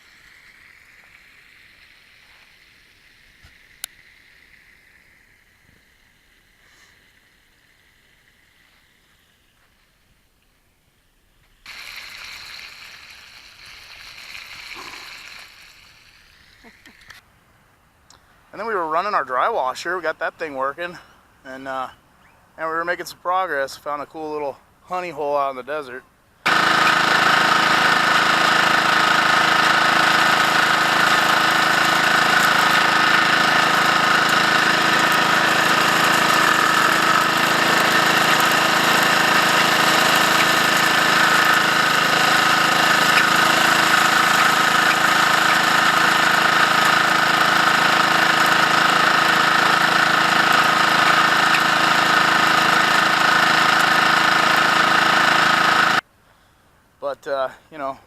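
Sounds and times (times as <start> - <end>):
dry washer engine drone: 11.7 - 15.6, 26.5 - 56.0.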